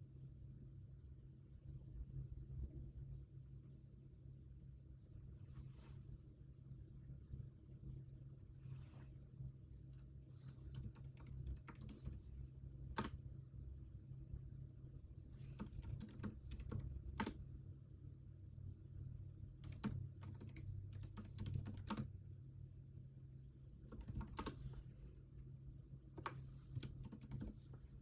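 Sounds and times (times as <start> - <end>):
steady low hum: 5.0 - 28.0
keyboard typing: 10.4 - 12.4, 13.0 - 13.2, 15.4 - 17.4, 19.6 - 22.1, 23.9 - 24.8, 26.2 - 27.9.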